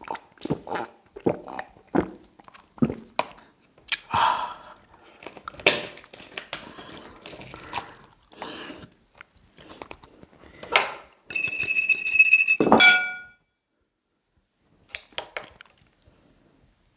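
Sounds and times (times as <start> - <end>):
cutlery clinking: 11.3 - 13.3
high ringing tone: 11.3 - 13.3.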